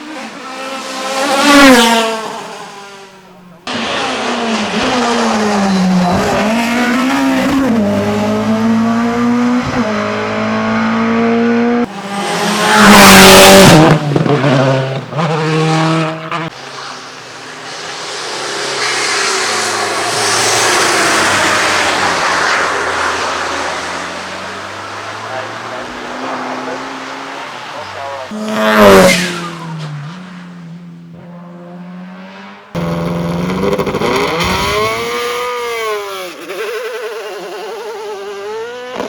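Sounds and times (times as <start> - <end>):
racing car engines at full throttle: 0.0 - 39.0
car passing close by: 3.7 - 35.9.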